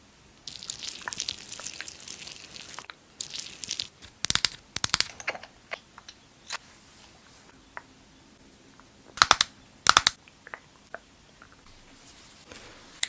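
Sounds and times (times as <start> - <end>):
sharp clicks and taps: 4.2 - 6.2, 9.1 - 11.6.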